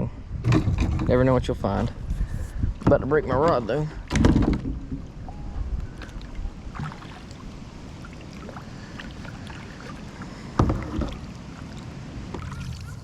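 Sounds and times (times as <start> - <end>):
light water sounds: 4.9 - 13.0.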